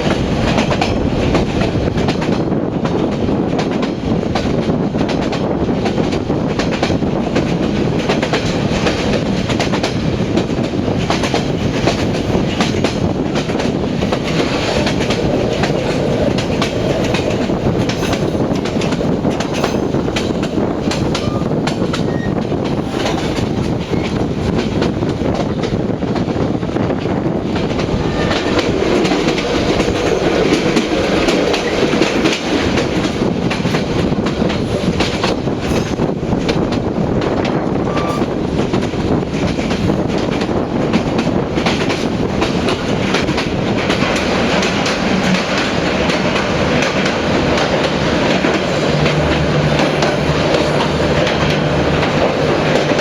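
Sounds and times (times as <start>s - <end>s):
train rumbling along track: 0.0s - 53.0s
wheels clicking over rail joints: 0.0s - 53.0s.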